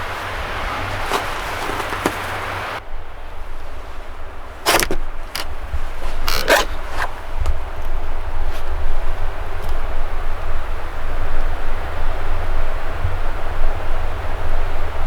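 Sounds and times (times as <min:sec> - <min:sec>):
steady hiss: 0:00.0 - 0:02.8
wind rumbling on microphone: 0:00.0 - 0:15.0.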